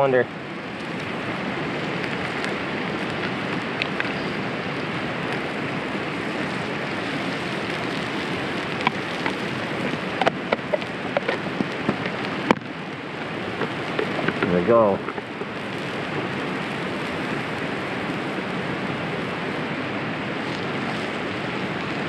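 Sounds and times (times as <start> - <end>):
eggs sizzling in a pan: 0.4 - 22.0
oil pops and clicks: 2.0 - 4.2, 7.1 - 15.9.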